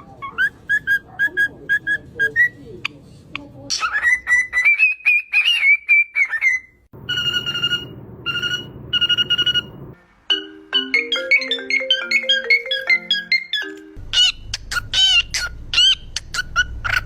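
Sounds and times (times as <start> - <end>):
parrot whistling: 3.8 - 10.0
music melody: 8.4 - 14.0.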